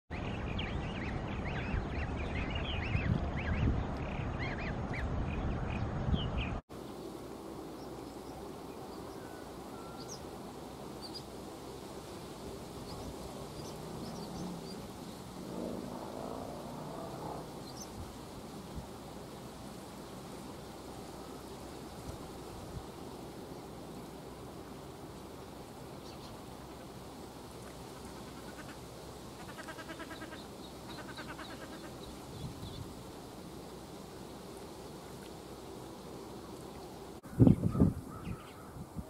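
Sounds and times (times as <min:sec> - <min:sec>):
ducks calling: 0:28.0 - 0:28.8, 0:29.4 - 0:32.0.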